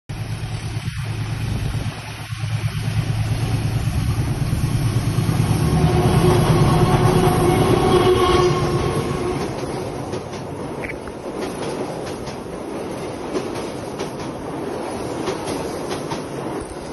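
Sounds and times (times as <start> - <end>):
train rumbling over bridge: 0.1 - 16.9
steady tone: 0.9 - 10.2.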